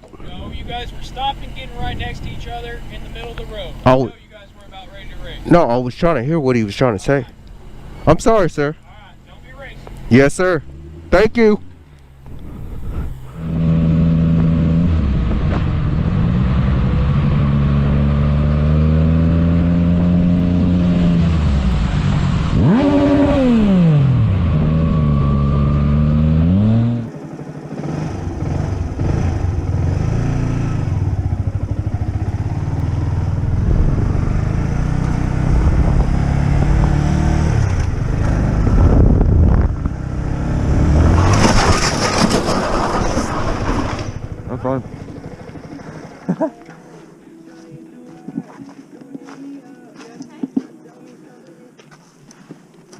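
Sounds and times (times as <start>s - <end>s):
road noise: 0.0s - 52.9s
motorcycle engine running: 9.2s - 46.6s.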